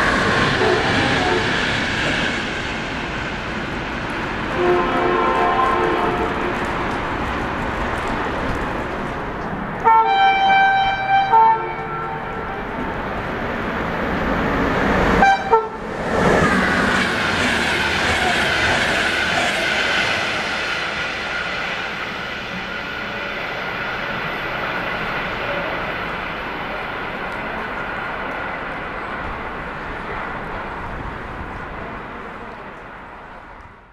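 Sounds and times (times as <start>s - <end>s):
freight train rolling: 0.0s - 33.9s
locomotive horn blasts: 4.6s - 6.7s, 9.8s - 12.7s, 15.2s - 15.8s.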